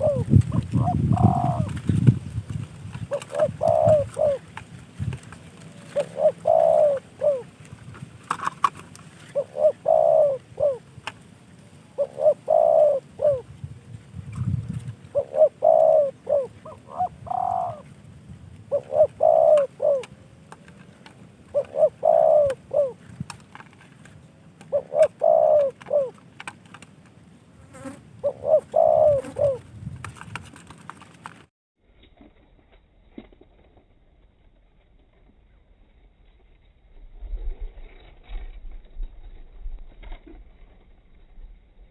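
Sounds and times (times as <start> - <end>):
dove cooing: 0.0 - 11.1, 11.8 - 13.6, 14.3 - 18.0, 18.7 - 23.6, 24.6 - 26.2, 27.7 - 31.0.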